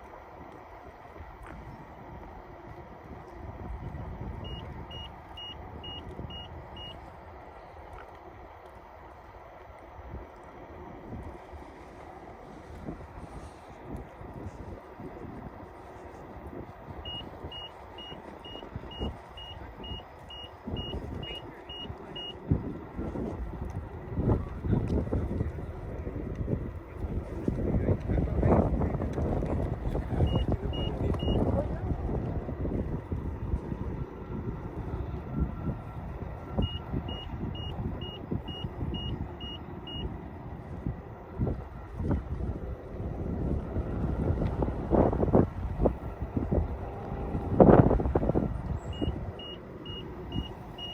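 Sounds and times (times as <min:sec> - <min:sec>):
wheel rumble over cracked pavement: 0:00.0 - 0:36.8, 0:40.1 - 0:50.9
wind buffeting microphone: 0:00.0 - 0:50.9
short high electronic beeps: 0:04.4 - 0:07.0, 0:17.1 - 0:22.3, 0:30.3 - 0:31.4, 0:36.6 - 0:40.0, 0:48.9 - 0:50.9.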